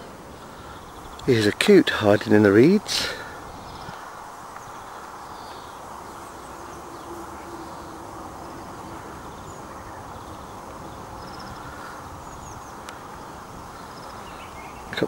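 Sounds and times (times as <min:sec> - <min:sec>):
steady rushing noise: 0:00.0 - 0:15.0
faint bird chirps: 0:03.2 - 0:15.0.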